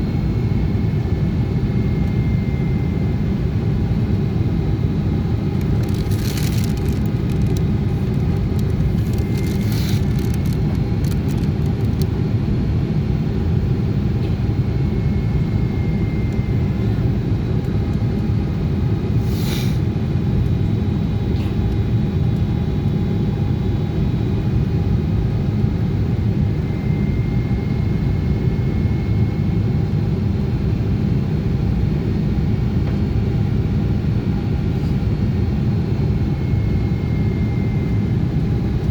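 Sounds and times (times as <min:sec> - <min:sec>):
airliner cabin roar: 0:00.0 - 0:38.9.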